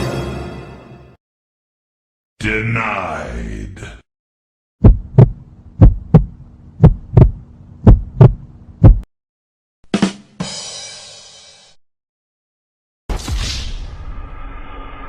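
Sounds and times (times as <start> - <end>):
heartbeat thumps: 4.8 - 9.1.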